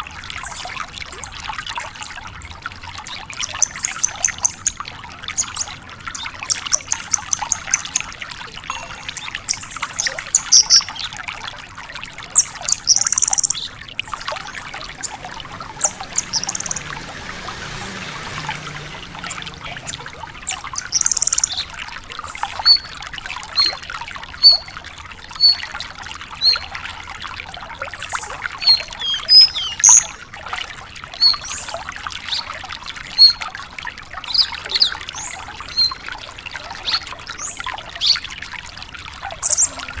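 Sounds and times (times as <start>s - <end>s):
steady trickling hiss: 0.0s - 29.0s
bird singing high chirps and trills: 3.0s - 4.8s, 5.4s - 11.2s, 12.3s - 17.0s, 18.8s - 23.8s, 24.4s - 24.8s, 25.4s - 25.7s, 26.4s - 26.7s, 28.0s - 30.2s, 31.1s - 33.4s, 34.3s - 36.1s, 39.2s - 40.0s.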